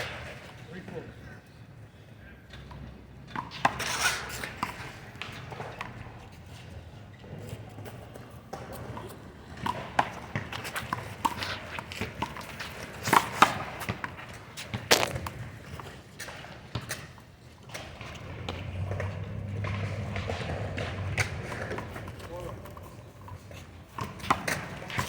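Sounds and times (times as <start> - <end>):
footsteps: 14.9 - 15.3
handball smacking wall and pavement: 14.9 - 15.3.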